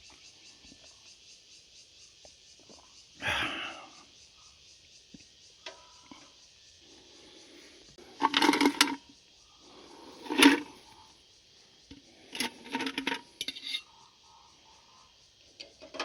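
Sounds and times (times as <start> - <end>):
tableware clinking and clattering: 8.2 - 9.0, 12.3 - 13.8.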